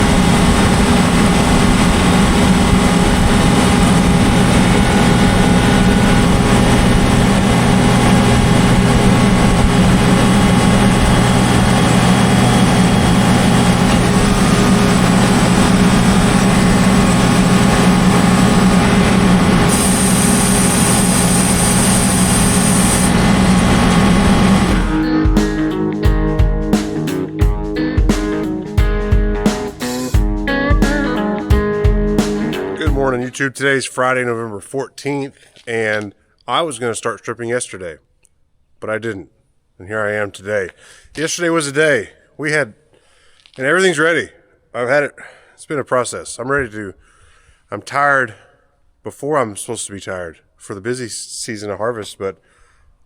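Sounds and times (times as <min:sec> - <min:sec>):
farm machinery engine hum: 0:00.0 - 0:25.1
high hiss: 0:19.7 - 0:25.7.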